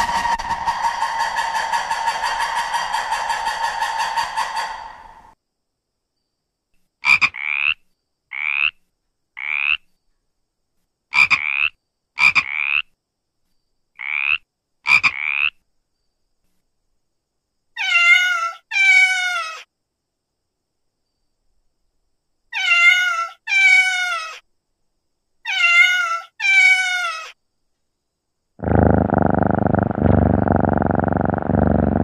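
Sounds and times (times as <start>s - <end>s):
frog croaking: 7.0s - 8.8s, 9.4s - 9.9s, 11.1s - 13.0s, 14.0s - 15.6s, 28.6s - 32.0s
cat meowing: 17.8s - 19.6s, 22.6s - 24.4s, 25.5s - 27.3s.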